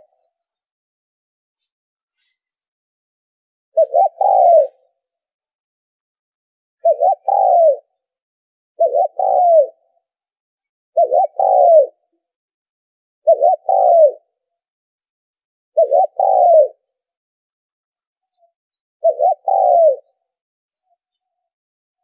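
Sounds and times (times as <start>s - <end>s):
dove cooing: 3.8s - 5.0s, 6.8s - 8.0s, 8.8s - 10.0s, 11.0s - 12.1s, 13.2s - 14.3s, 15.8s - 16.9s, 19.0s - 20.2s.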